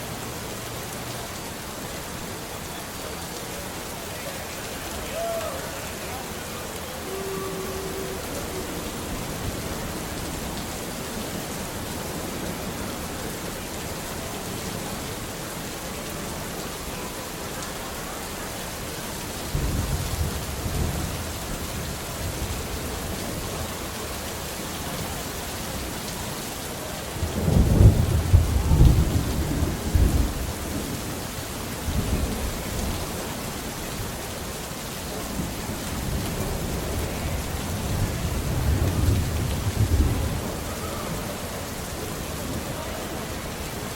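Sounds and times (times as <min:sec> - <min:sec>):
rain hissing: 0:00.0 - 0:43.9
thunder rolling: 0:27.2 - 0:30.9, 0:36.5 - 0:41.5.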